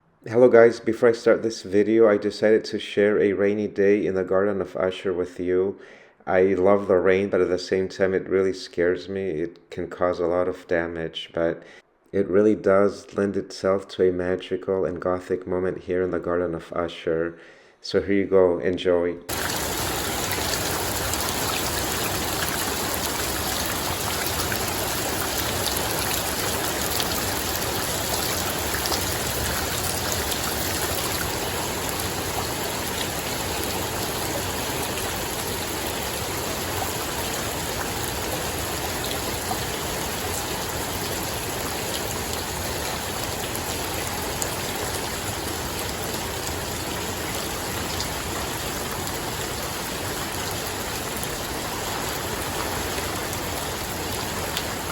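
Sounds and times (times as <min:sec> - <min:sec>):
raindrop hits: 0:19.3 - 0:45.0
steady rain hiss: 0:19.3 - 0:54.9.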